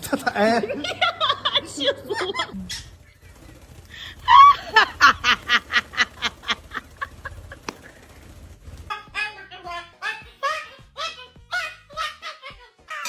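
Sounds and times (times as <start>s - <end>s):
parrot laugh-like call: 4.0s - 8.0s, 8.9s - 13.0s.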